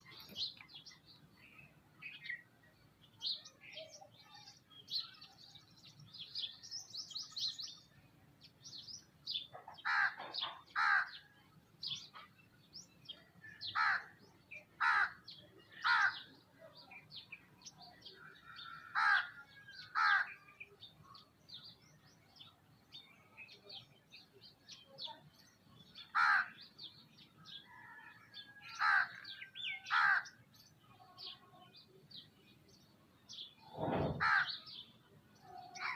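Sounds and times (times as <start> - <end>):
small birds chirping: 0.0 - 35.9
crows cawing: 9.8 - 11.2, 13.7 - 14.1, 14.8 - 15.2, 15.8 - 16.3, 18.6 - 20.4, 26.1 - 26.6, 28.7 - 30.4, 34.2 - 34.6.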